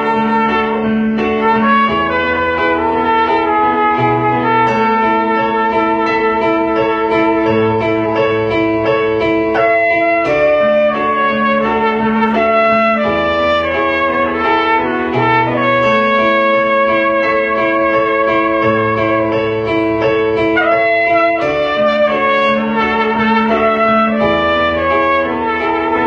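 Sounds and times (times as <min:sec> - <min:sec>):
trumpet playing slow melody: 0:00.0 - 0:08.6, 0:09.4 - 0:26.0
piano backing track: 0:00.0 - 0:26.0.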